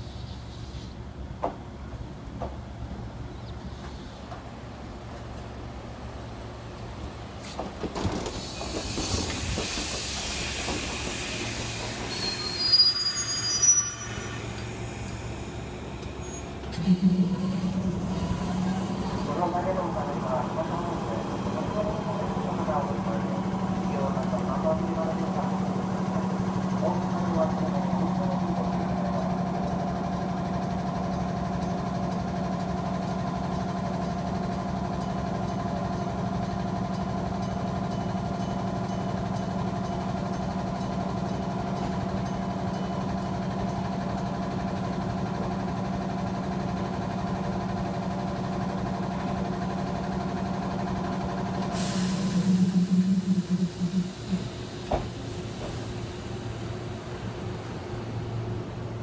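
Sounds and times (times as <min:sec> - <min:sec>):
brake air hiss: 0:00.0 - 0:01.0, 0:03.8 - 0:04.3, 0:51.6 - 0:56.6
train equipment hum: 0:00.0 - 0:59.0.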